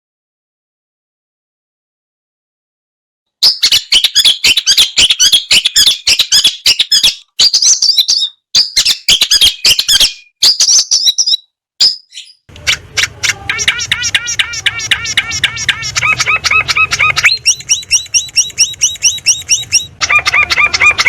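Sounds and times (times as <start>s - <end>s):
bird harsh chattering song: 3.4s - 21.0s
fast even bird trill: 3.4s - 21.0s
low hum: 12.5s - 20.1s.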